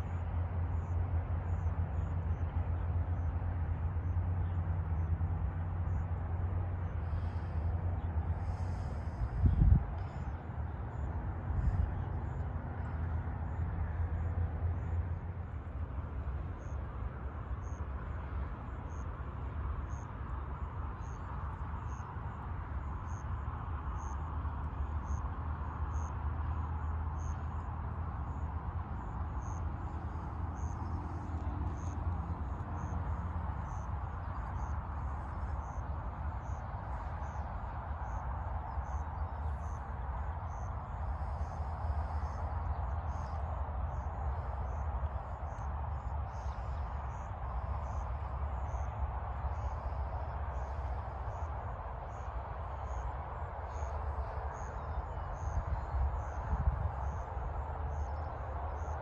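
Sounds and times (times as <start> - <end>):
insect chirping: 0.0 - 3.4, 4.0 - 59.0
distant road traffic hum: 0.0 - 59.0.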